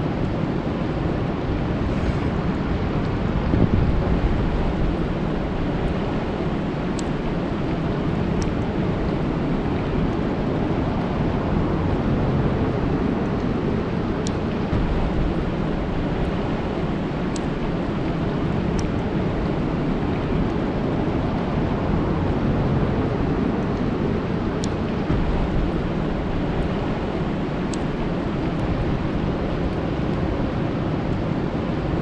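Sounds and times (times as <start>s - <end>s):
rain falling on water: 3.0s - 32.0s
faint high ticks: 17.3s - 17.5s.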